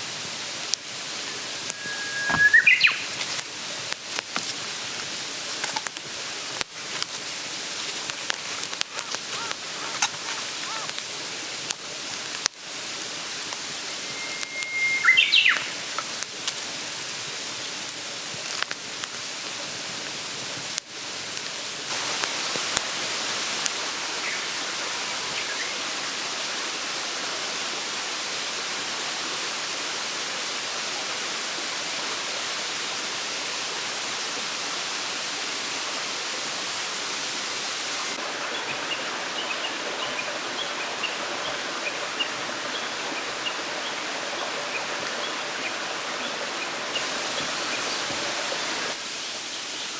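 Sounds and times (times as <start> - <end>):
stream babbling: 0.0 - 49.9
faint high chirps: 1.3 - 3.2, 13.8 - 15.8.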